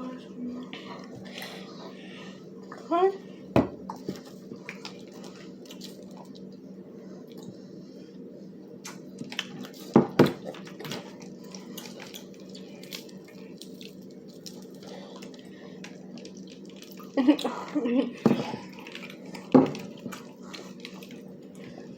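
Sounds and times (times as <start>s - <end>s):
steady low hum: 0.0s - 21.9s
eating noises: 3.8s - 6.6s, 8.8s - 21.9s
small clicks and squishy sounds: 4.0s - 6.6s, 8.8s - 17.5s.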